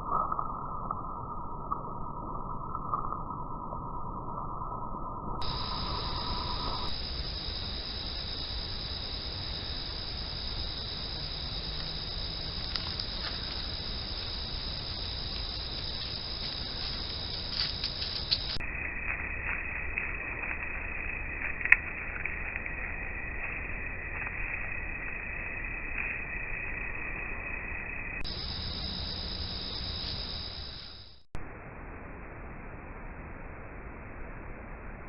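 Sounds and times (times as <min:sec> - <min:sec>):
hiss and low rumble: 0:00.0 - 0:35.0
high-pitched drone: 0:05.4 - 0:07.2
faint clicks: 0:12.6 - 0:18.6.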